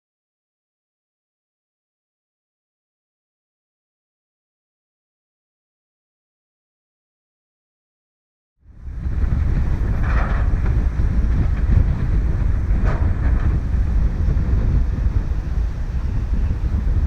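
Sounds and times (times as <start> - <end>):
wind buffeting microphone: 8.6 - 17.0.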